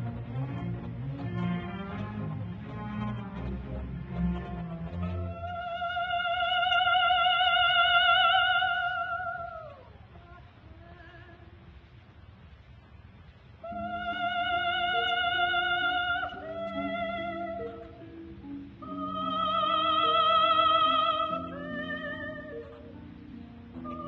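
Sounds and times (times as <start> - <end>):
instrumental accompaniment: 0.0 - 6.1
operatic singing: 0.0 - 11.6, 13.6 - 24.0.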